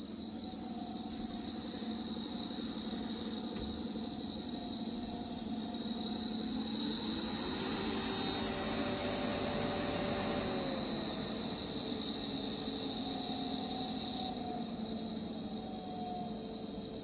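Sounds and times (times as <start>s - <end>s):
pool pump squealing: 6.0s - 14.2s.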